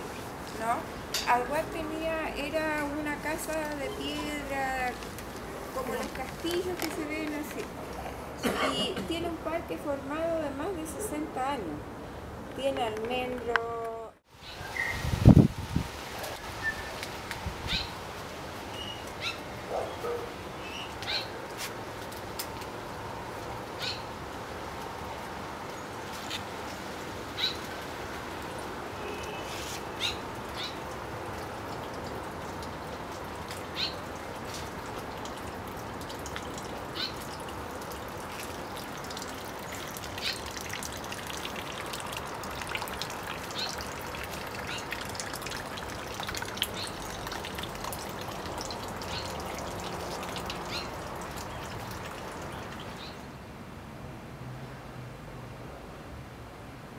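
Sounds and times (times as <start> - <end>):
small birds chirping: 33.7 - 34.0, 36.4 - 37.3, 50.6 - 53.3.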